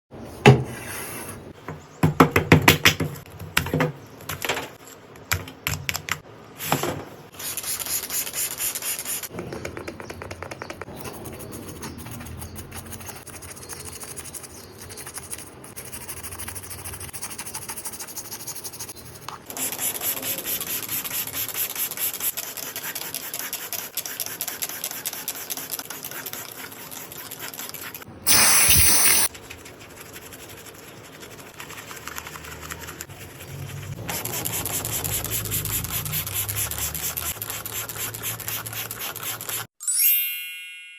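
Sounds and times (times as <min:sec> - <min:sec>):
short loud hiss: 0:28.3 - 0:29.3.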